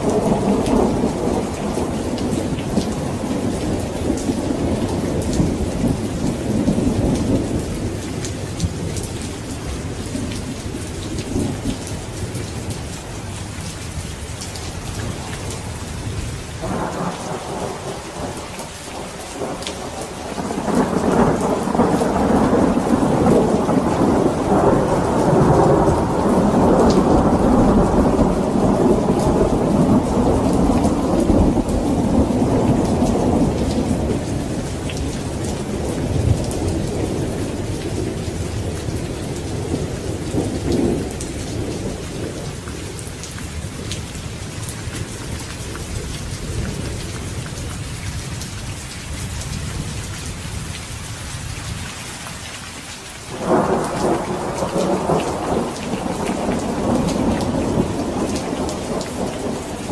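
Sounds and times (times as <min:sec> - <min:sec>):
thunder rolling: 0:00.0 - 0:10.4, 0:15.0 - 0:18.4, 0:19.0 - 0:42.5, 0:53.4 - 0:59.9
heavy rain: 0:00.0 - 0:59.9.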